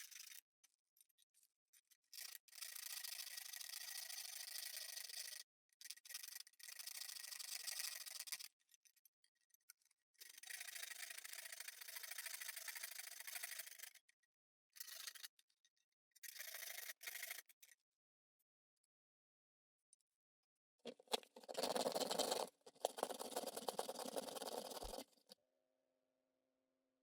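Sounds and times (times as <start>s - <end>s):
hard plastic being scraped: 20.9s - 25.4s.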